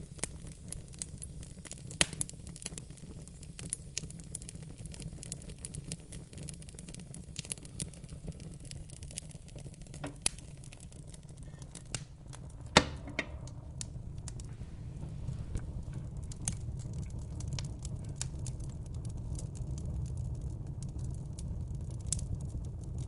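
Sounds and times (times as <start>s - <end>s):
fire crackling: 0.0s - 23.0s
sharp pops of fire: 0.0s - 23.0s
low rumble: 10.3s - 22.8s.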